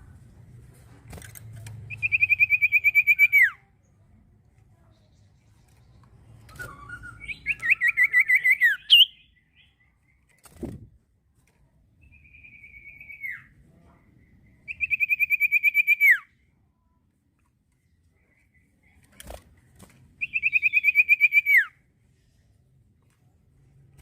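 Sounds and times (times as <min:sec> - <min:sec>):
bird whistled trills: 0:01.9 - 0:03.6, 0:06.4 - 0:09.4, 0:20.2 - 0:21.7
drawn-out bird whistle: 0:01.9 - 0:03.6, 0:06.4 - 0:09.3, 0:12.1 - 0:13.5, 0:14.7 - 0:16.3, 0:20.2 - 0:21.8.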